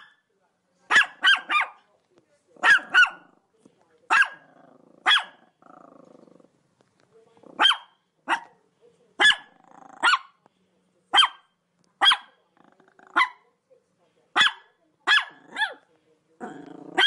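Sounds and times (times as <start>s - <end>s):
dog barking: 0.0s - 0.2s, 0.9s - 1.9s, 2.6s - 3.3s, 4.1s - 5.5s, 7.6s - 8.6s, 9.2s - 10.4s, 11.1s - 12.4s, 13.1s - 13.4s, 14.3s - 15.9s.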